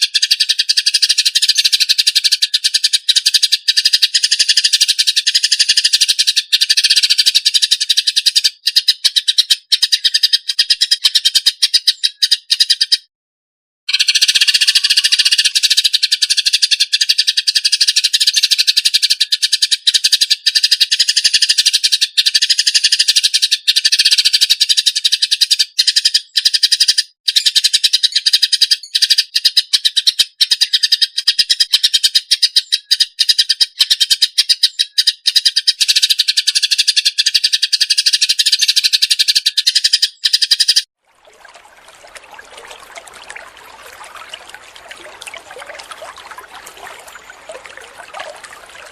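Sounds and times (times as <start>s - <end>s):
water trickling: 41.0s - 48.9s.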